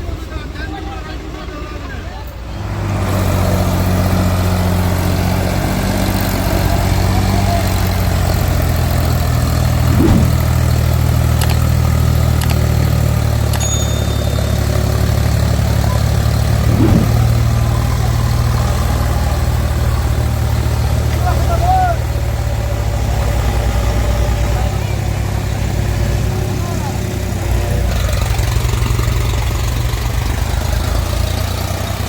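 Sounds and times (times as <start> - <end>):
light clicks: 11.4 - 11.6.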